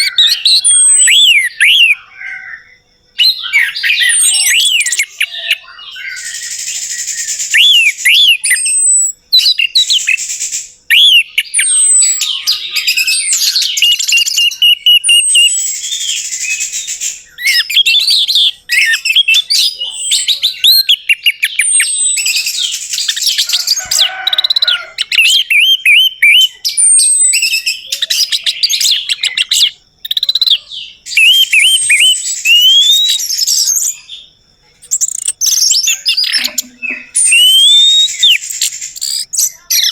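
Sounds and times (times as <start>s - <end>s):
thrush singing: 35.4s - 39.0s.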